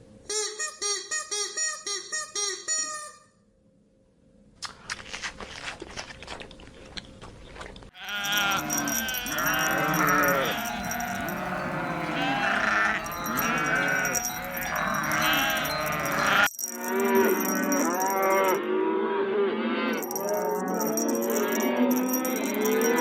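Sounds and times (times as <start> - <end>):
flock bleating: 8.0 - 16.5.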